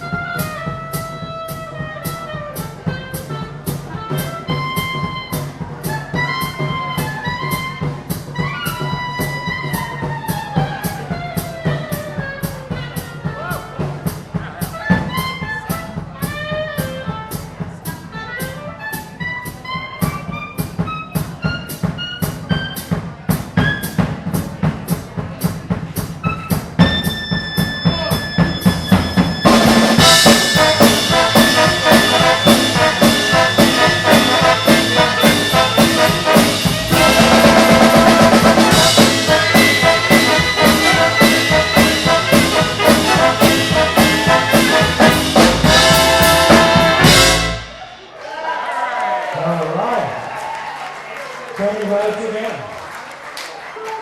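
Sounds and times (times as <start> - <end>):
drum kit beat: 0.0 - 48.0
big band brass playing swing: 0.0 - 48.1.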